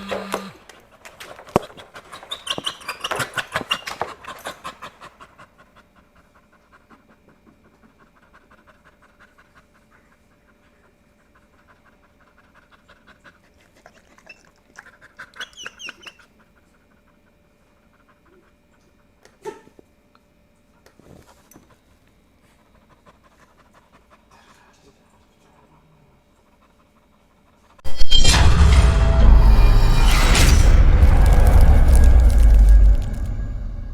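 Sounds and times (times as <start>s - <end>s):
dog panting: 1.0s - 19.1s, 21.2s - 27.8s.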